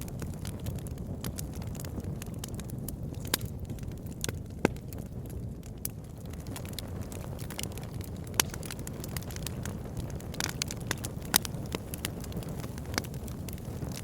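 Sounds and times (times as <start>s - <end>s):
campfire burning: 0.0s - 14.0s.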